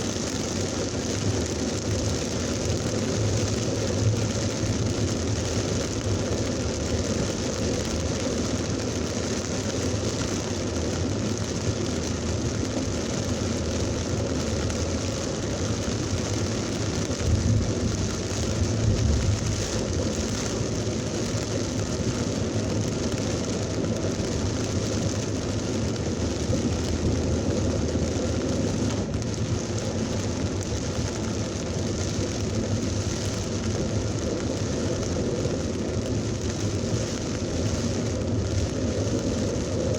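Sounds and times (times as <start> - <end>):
heavy rain pouring: 0.0 - 39.9
thunder rumble: 14.2 - 39.8.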